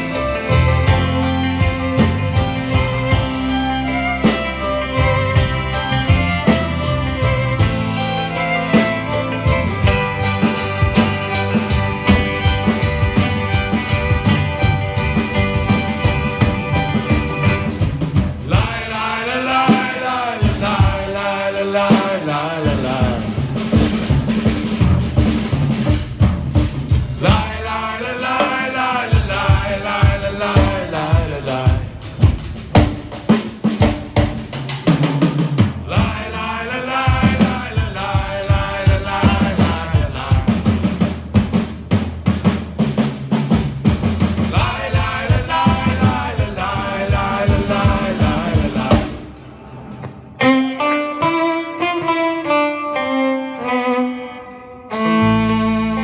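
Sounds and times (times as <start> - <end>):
lead melody line: 0.0 - 18.1
steady drum beat: 0.0 - 50.4
live band playing instrumental: 0.0 - 56.0.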